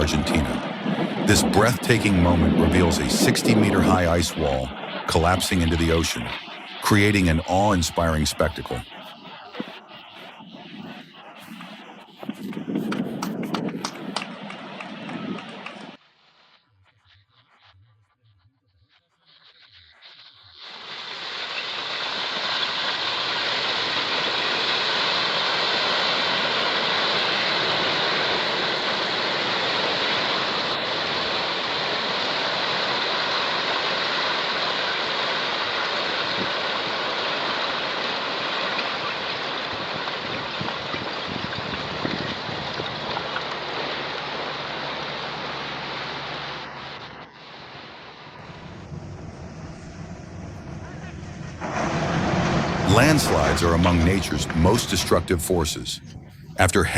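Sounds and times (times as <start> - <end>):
churning water rushing: 0.0 - 8.6, 21.4 - 49.2, 51.2 - 55.7.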